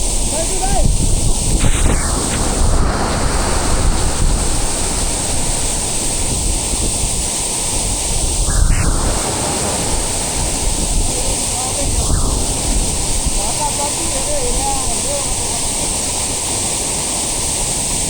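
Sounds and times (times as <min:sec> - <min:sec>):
wind buffeting microphone: 0:00.0 - 0:18.0
waterfall roaring: 0:02.4 - 0:07.8.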